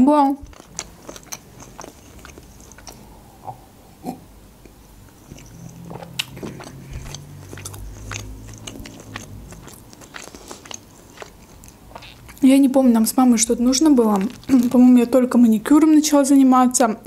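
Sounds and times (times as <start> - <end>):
person chewing food: 0.3 - 15.2
mouth clicks: 0.4 - 12.4.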